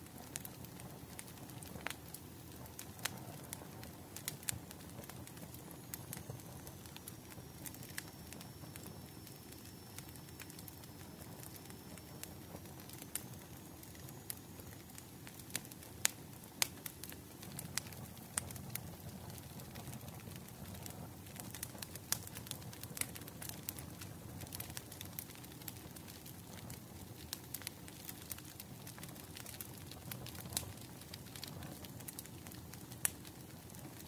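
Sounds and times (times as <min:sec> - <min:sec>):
wood fire crackling: 0:00.0 - 0:34.0
faint high whistle: 0:05.7 - 0:15.0.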